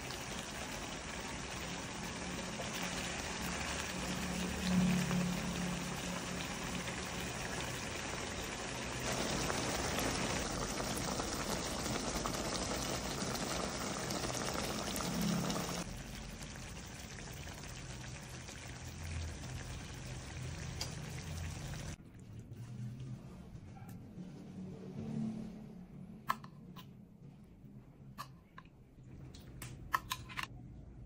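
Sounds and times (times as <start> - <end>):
food bubbling in a pan: 0.0 - 23.4.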